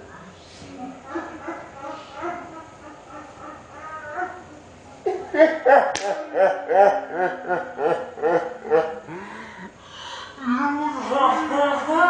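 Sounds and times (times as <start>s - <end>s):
women laughing: 1.0s - 9.7s, 10.4s - 12.0s
sharp slap: 5.9s - 6.2s.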